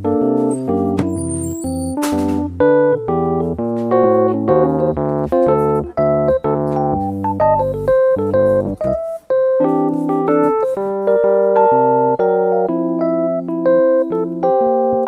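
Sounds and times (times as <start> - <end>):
electronic keyboard music: 0.0 - 15.0.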